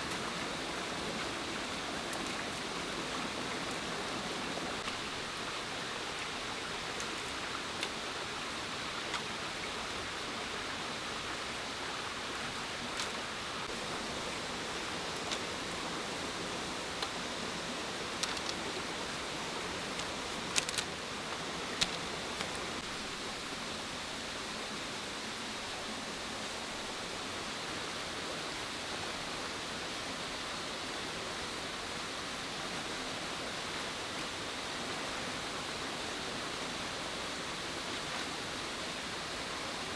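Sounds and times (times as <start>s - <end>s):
rushing water: 0.0s - 39.9s
light clicks and taps: 18.0s - 18.9s, 19.7s - 22.8s.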